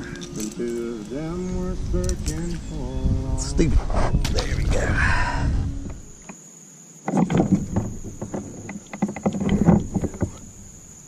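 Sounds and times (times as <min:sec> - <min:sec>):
high insect drone: 0:00.0 - 0:11.0
fishing gear knocking in kayak: 0:07.1 - 0:10.4.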